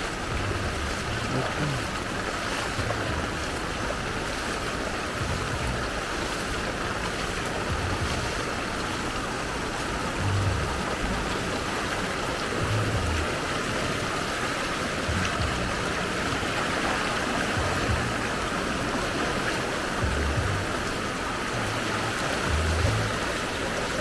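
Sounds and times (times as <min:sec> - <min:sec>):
floodwater rushing: 0:00.0 - 0:24.0
rain falling: 0:00.0 - 0:24.0
dull low thump: 0:00.3 - 0:02.0, 0:02.8 - 0:03.5, 0:05.2 - 0:06.0, 0:07.7 - 0:08.5, 0:10.2 - 0:11.2, 0:12.6 - 0:13.3, 0:15.1 - 0:15.9, 0:17.5 - 0:18.4, 0:20.0 - 0:20.9.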